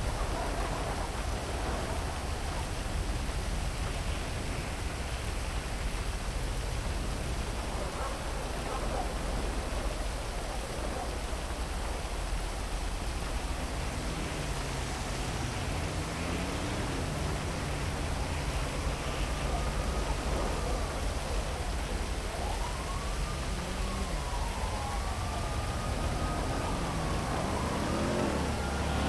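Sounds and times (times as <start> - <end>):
heavy rain falling: 0.0 - 29.0
siren wailing: 13.4 - 29.0.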